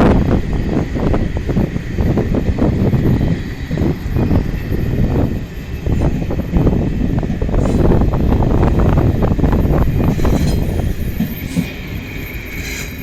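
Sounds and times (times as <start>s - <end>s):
train rumbling past: 0.0s - 13.0s
wind buffeting microphone: 0.0s - 13.0s.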